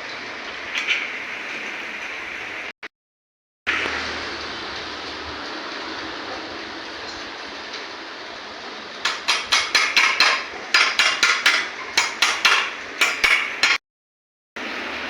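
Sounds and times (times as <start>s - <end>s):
hammer striking metal: 9.0s - 13.8s.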